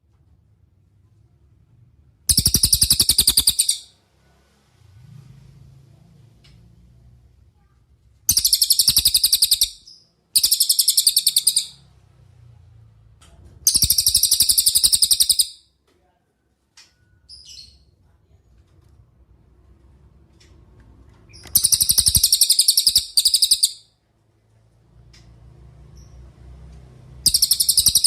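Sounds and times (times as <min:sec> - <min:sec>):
songbird trilling: 0:02.3 - 0:03.9, 0:08.3 - 0:11.8, 0:13.7 - 0:15.6, 0:21.3 - 0:23.8, 0:27.3 - 0:28.0.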